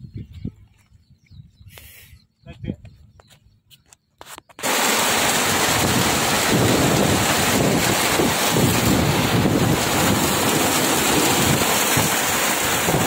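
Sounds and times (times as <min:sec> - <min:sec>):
loud steady rushing noise: 0:04.6 - 0:13.0
rough pulsing rumble: 0:04.7 - 0:13.0.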